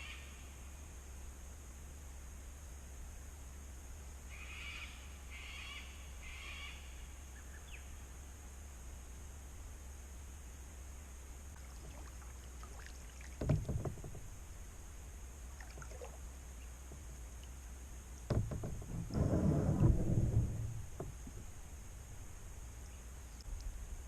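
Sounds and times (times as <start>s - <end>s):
steady low hum: 0.0s - 24.0s
kayak paddle splashing in water: 11.6s - 17.6s.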